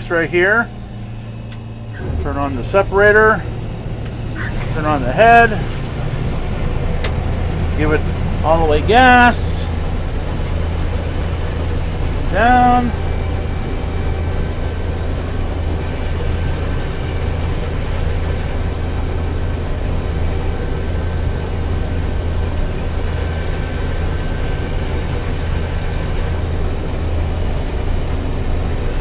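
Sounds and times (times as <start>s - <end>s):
combine harvester drone: 0.0s - 29.0s
faint machine whine: 0.0s - 29.0s.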